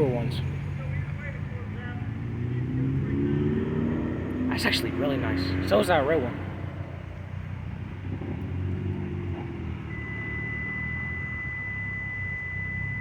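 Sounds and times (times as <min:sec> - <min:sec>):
cars driving slowly past: 0:00.0 - 0:13.0
high-pitched steady tone: 0:09.7 - 0:13.0.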